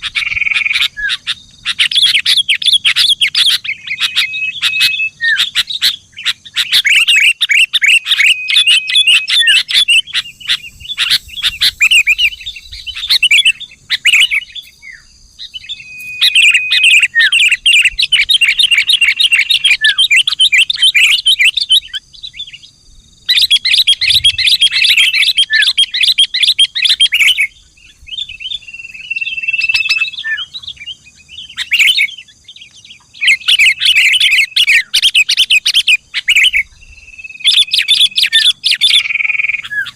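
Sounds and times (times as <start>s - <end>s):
bulbul chattering calls: 0.0s - 39.9s
short level whistles: 15.8s - 17.3s.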